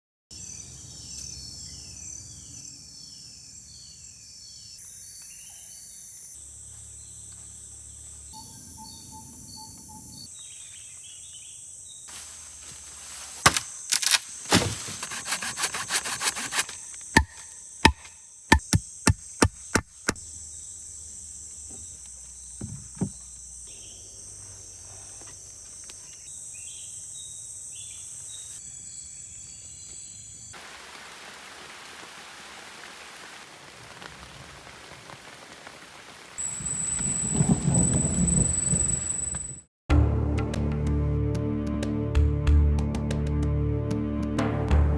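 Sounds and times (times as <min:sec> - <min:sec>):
bird chirps: 0:00.3 - 0:12.1, 0:21.7 - 0:30.5
insect chirps: 0:00.3 - 0:39.7
sharp strikes on wood: 0:13.4 - 0:13.7, 0:14.5 - 0:20.2.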